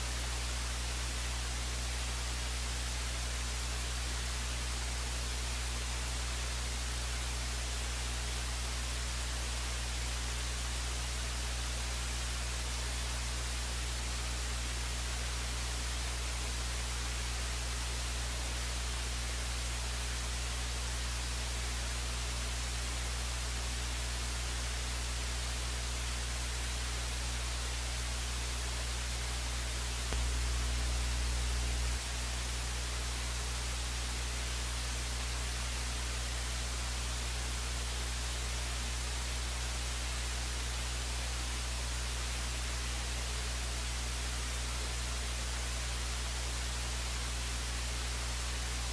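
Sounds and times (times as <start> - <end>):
low electrical hum: 0.0 - 48.9
steady hiss: 0.0 - 48.9.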